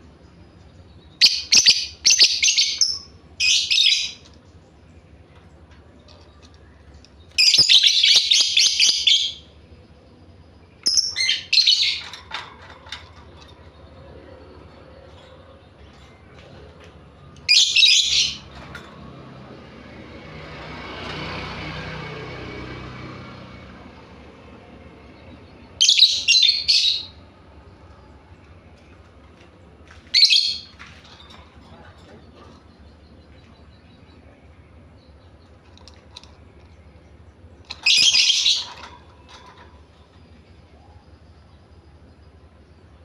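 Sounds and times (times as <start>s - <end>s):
bird chattering trills: 37.7s - 39.7s.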